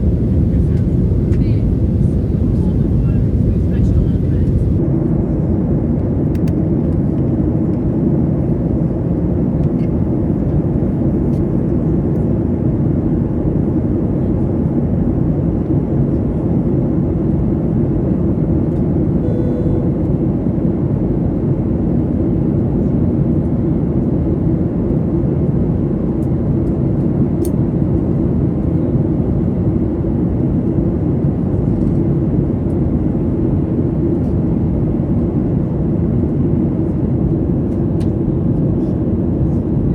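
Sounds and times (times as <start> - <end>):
faint cabin tone: 0.0 - 4.8, 19.2 - 20.1
airplane cabin engine rumble: 0.0 - 39.9.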